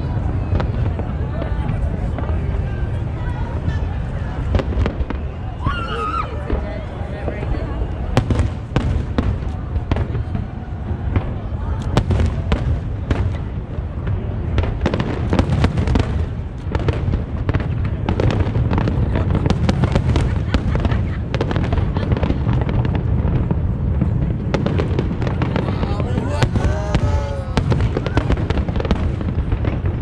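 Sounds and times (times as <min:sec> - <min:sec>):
fireworks bangs and crackles: 0:00.0 - 0:30.0
low rumble of booms: 0:06.4 - 0:30.0.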